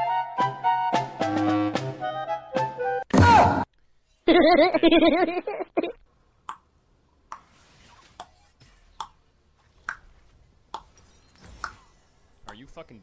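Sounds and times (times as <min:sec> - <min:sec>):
music: 0:00.0 - 0:03.6.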